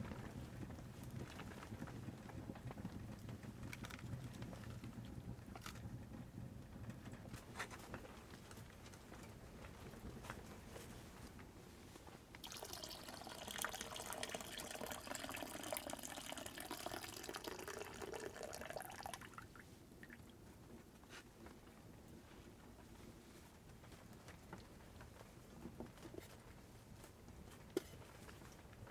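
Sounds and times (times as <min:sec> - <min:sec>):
liquid poured into container: 0:12.4 - 0:20.3.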